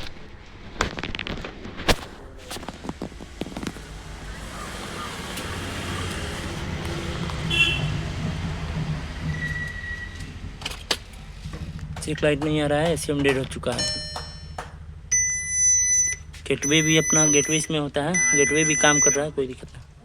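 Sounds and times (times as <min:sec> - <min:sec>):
motor vehicle humming: 0:00.0 - 0:20.0
high steady tone: 0:13.6 - 0:19.4.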